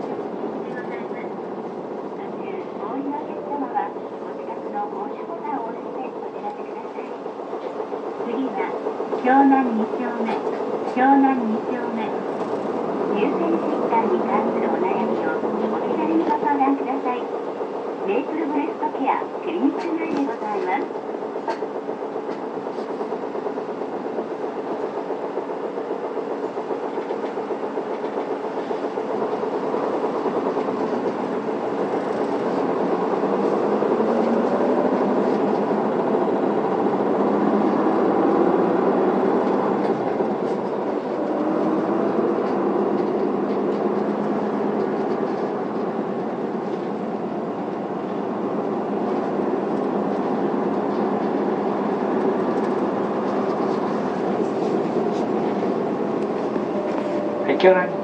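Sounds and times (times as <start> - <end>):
bus diesel engine droning: 26.1 - 58.0.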